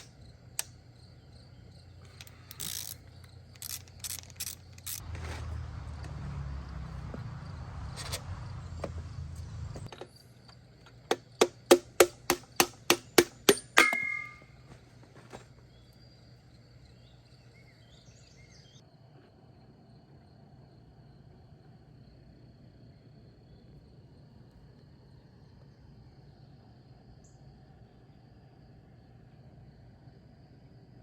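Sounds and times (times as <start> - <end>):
faint bird or insect chirps: 0.0 - 5.0, 13.8 - 31.0
metal tool clicks: 2.1 - 5.0
metallic ringing clink: 13.6 - 14.5.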